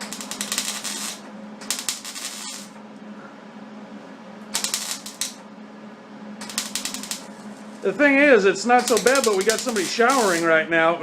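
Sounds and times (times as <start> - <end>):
welding arc crackling: 0.0 - 2.8, 4.5 - 5.4, 6.4 - 10.5
steady low hum: 0.0 - 11.0.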